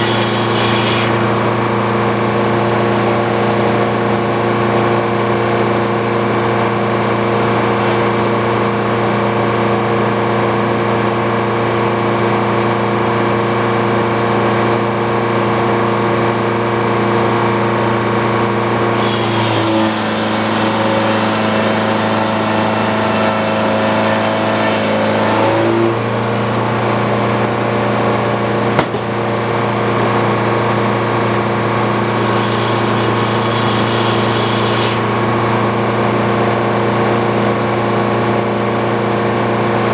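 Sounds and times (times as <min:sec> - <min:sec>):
sawmill engine and circular blade: 0:00.0 - 0:39.9
sharp knock: 0:28.8 - 0:29.2.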